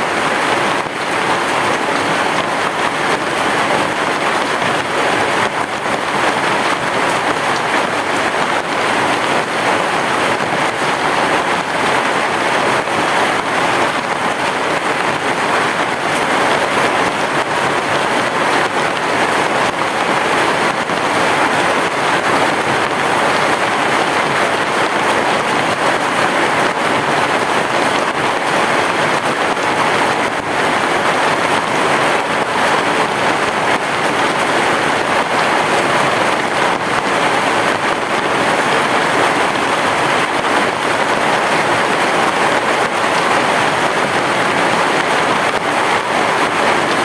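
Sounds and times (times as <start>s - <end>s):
heavy rain falling: 0.0s - 47.0s.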